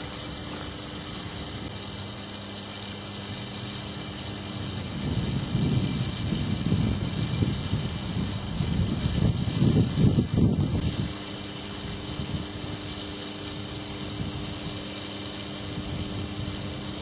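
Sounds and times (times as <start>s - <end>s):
corona discharge hissing and crackling: 0.0s - 17.0s
faint low electrical hum: 0.0s - 17.0s
gusty low rumble: 4.4s - 11.1s.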